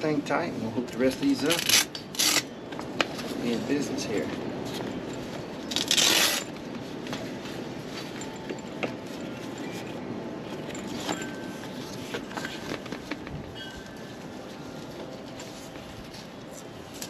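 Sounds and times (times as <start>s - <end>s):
straps and fasteners clicking on plastic: 4.3s - 13.6s.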